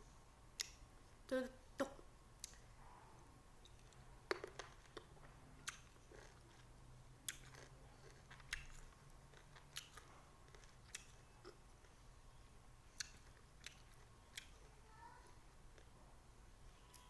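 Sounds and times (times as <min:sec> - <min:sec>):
chewing with mouth clicks and crunches: 0:03.6 - 0:12.0, 0:13.0 - 0:14.6.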